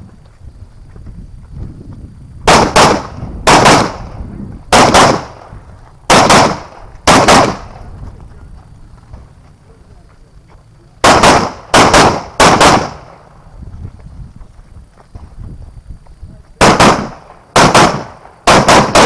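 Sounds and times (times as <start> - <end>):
rifle shots: 2.5 - 5.5, 6.1 - 7.9, 11.0 - 13.4, 16.6 - 19.0.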